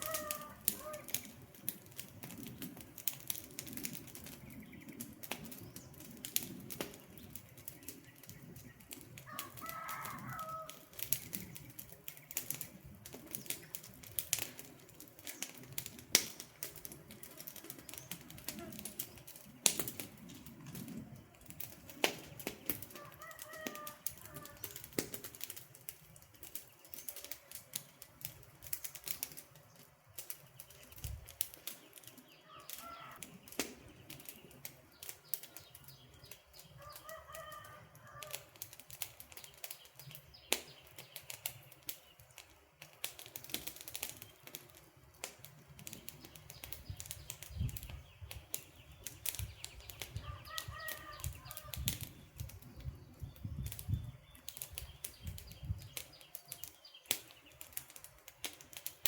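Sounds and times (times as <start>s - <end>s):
bird calling: 0.0s - 1.4s, 32.4s - 33.5s
campfire crackling and popping: 0.0s - 59.0s.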